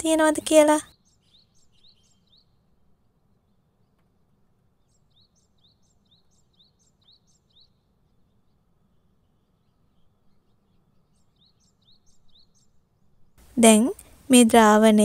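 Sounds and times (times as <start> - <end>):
small bird chirping: 0.0 - 4.2, 4.8 - 15.0.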